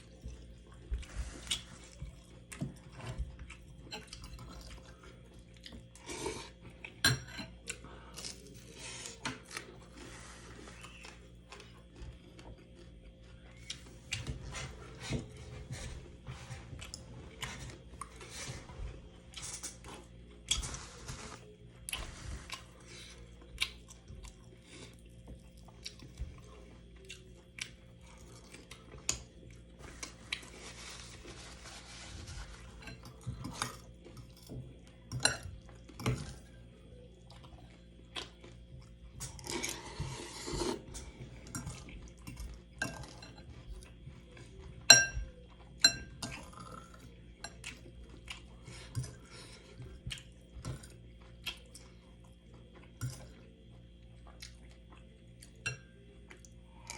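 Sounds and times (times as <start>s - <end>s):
cutlery clinking against dishes: 7.0s - 7.6s, 44.8s - 46.5s.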